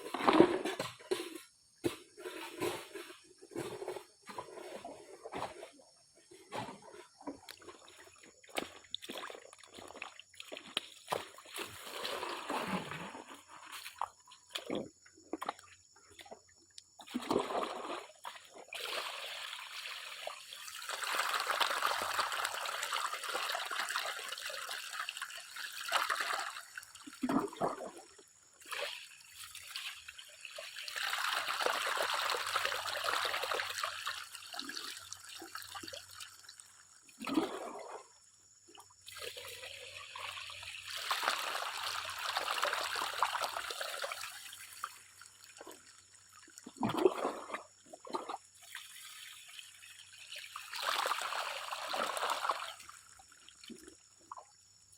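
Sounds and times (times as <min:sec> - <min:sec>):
water sloshing from a pan: 0:00.1 - 0:18.8.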